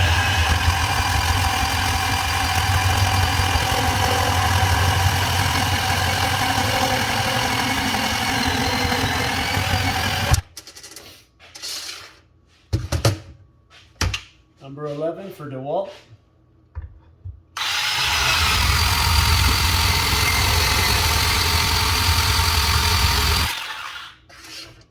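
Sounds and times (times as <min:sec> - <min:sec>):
band saw cutting pipe: 0:00.0 - 0:10.4, 0:17.6 - 0:24.3.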